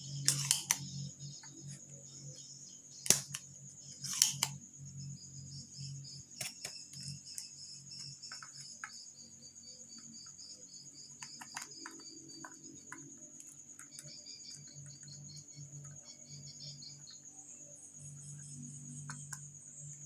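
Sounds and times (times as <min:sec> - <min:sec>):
cricket chirping: 0:00.0 - 0:20.0
small clicks and taps: 0:06.4 - 0:09.0, 0:11.1 - 0:15.1, 0:19.0 - 0:19.5.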